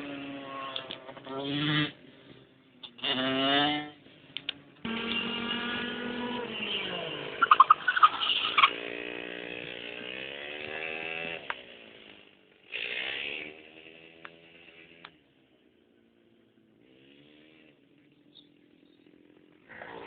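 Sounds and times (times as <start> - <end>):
motorcycle engine revving: 0.0 - 20.0
sharp loud engine bursts: 4.9 - 15.0.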